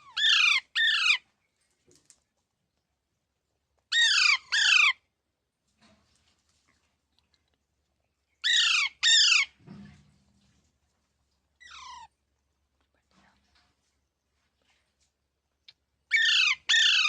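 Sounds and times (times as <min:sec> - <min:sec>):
parrot squawking: 0:00.1 - 0:01.2, 0:03.9 - 0:05.0, 0:08.4 - 0:09.5, 0:11.6 - 0:12.1, 0:16.1 - 0:17.0.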